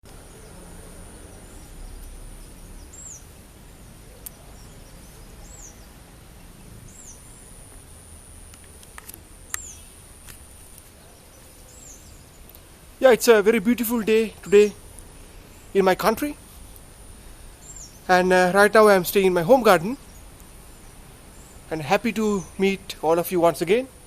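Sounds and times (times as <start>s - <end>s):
small bird calling: 0.1s - 7.6s, 9.2s - 10.0s, 17.2s - 22.9s
faint clicks: 4.2s - 4.4s, 8.5s - 10.9s.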